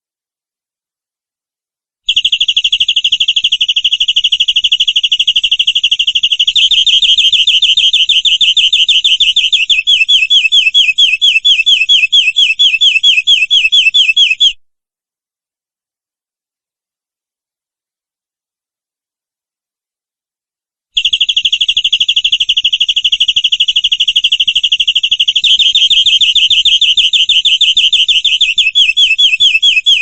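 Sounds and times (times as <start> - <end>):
canary singing trill: 2.2 - 14.6, 21.0 - 30.0.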